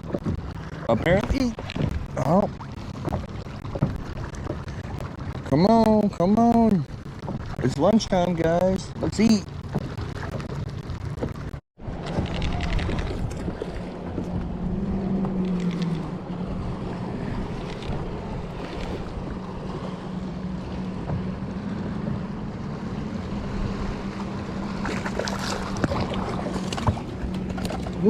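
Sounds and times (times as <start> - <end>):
short knocks and clicks: 0.0 - 2.2, 2.8 - 13.4
boat motor humming: 0.0 - 28.0
water noise: 0.0 - 28.0
wind: 0.0 - 28.0.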